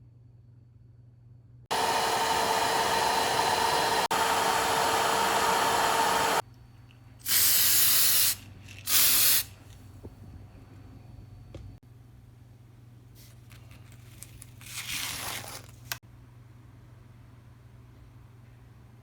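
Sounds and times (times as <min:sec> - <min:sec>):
aerosol can spraying: 0:07.3 - 0:09.5.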